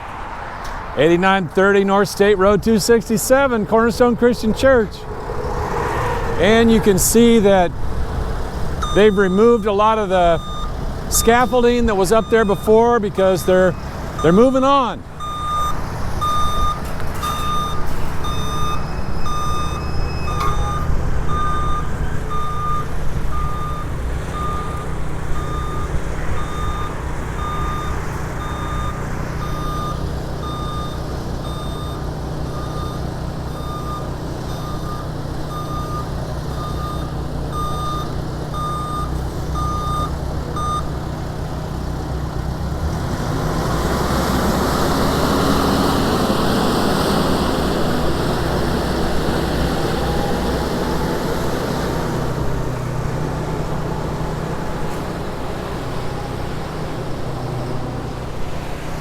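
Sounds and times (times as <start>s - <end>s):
vehicle engine running: 1.0s - 59.0s
reversing alarm beeping: 8.8s - 40.9s.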